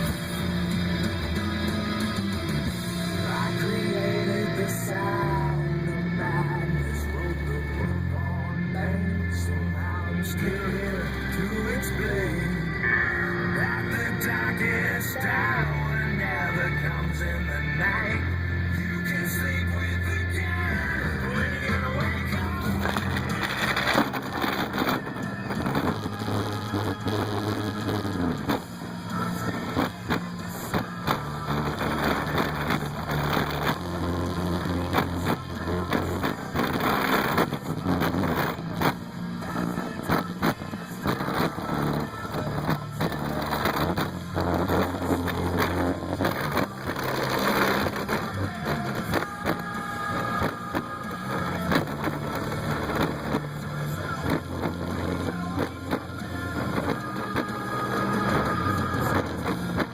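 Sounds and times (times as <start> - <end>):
deep bass music: 0.0 - 59.9
sharp crackling hits: 21.5 - 59.9.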